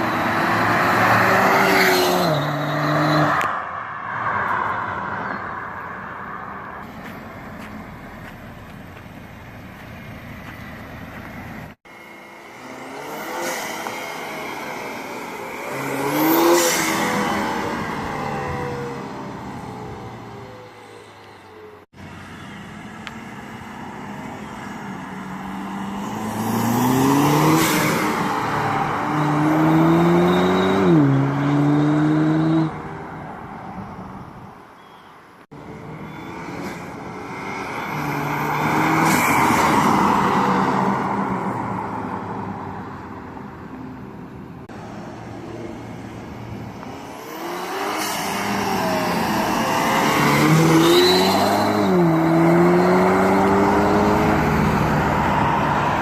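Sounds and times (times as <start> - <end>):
car engine accelerating hard: 24.9 - 32.8, 45.6 - 56.0.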